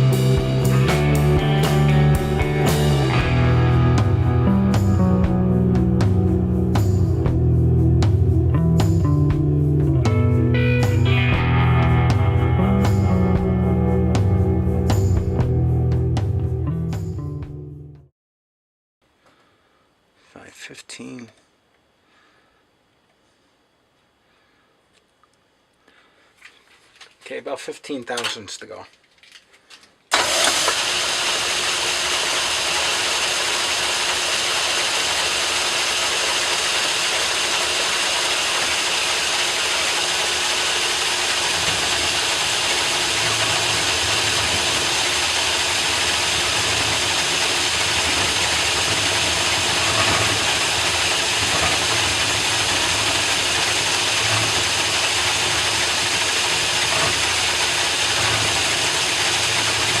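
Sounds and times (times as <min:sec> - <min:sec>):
low pulsing: 0:00.0 - 0:17.9
metal lathe running: 0:30.2 - 1:00.0.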